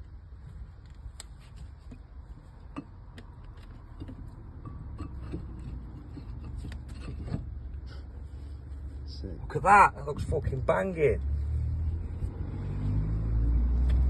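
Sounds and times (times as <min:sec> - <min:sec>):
tools clicking and knocking: 0:02.7 - 0:07.5.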